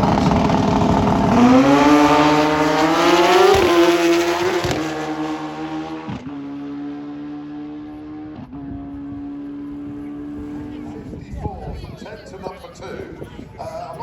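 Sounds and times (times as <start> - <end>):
motorcycle accelerating hard: 0.0 - 11.1.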